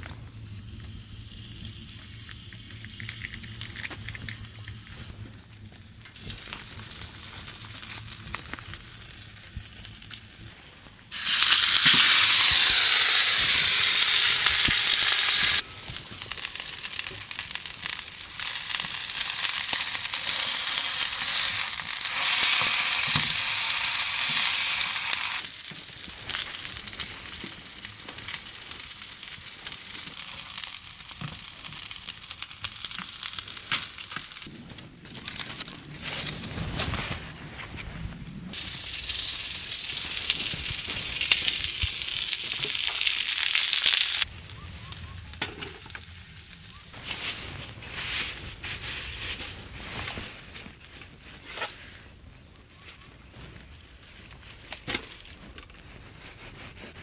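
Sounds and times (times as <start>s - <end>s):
food sizzling in a hot pan: 11.1s - 34.5s, 38.5s - 44.3s.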